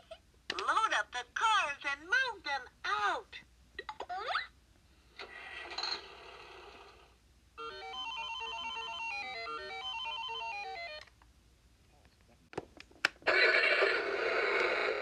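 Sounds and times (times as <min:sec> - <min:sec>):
toy noisy rush: 0:13.3 - 0:15.0.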